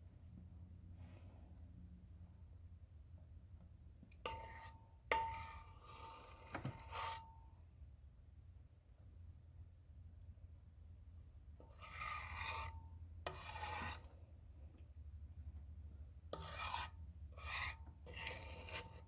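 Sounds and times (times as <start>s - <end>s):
utensil scraping batter: 4.2s - 7.2s, 11.6s - 14.2s, 16.3s - 19.0s.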